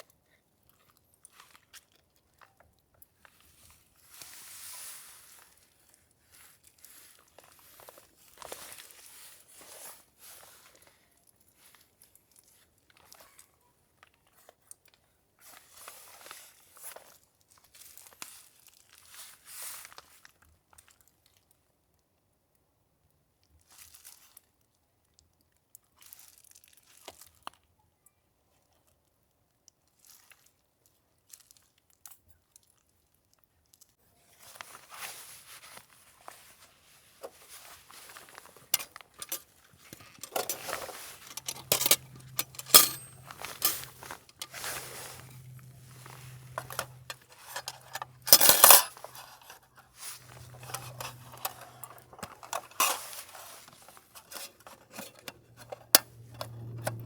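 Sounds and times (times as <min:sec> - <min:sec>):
cookware clicks and clinks: 0:38.8 - 0:39.4, 0:40.0 - 0:44.6, 0:46.4 - 0:49.2, 0:50.5 - 0:53.1.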